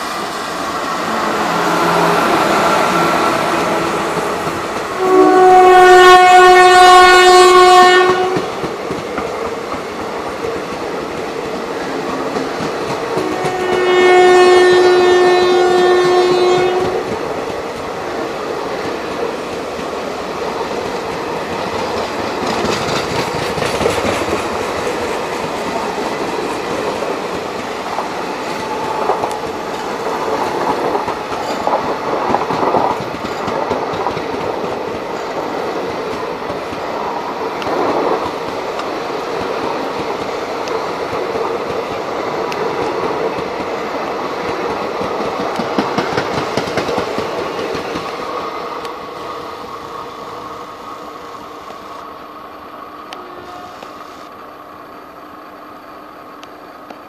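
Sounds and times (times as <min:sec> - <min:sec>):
train wheels clattering over joints: 0:20.8 - 0:35.1, 0:44.4 - 0:48.2.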